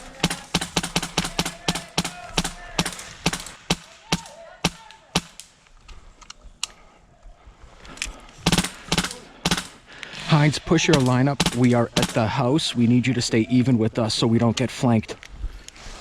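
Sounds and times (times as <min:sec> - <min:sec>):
airsoft guns firing: 0:00.0 - 0:05.6, 0:08.4 - 0:09.9, 0:10.7 - 0:12.4.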